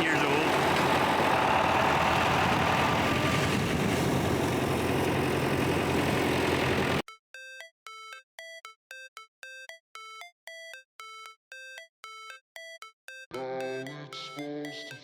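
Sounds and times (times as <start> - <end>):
motorbike engine idling: 0.0 - 7.0.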